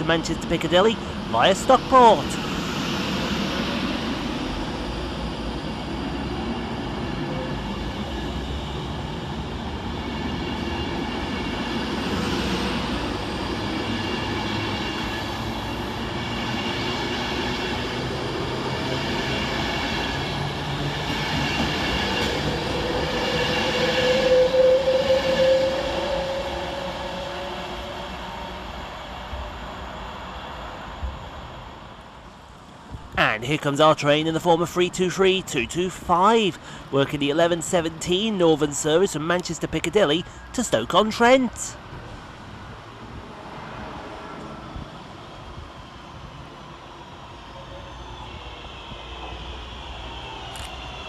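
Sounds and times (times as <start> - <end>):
electric train passing: 0.0 - 51.0
train squeal: 6.6 - 8.9, 9.8 - 18.1, 18.8 - 30.6, 45.8 - 51.0.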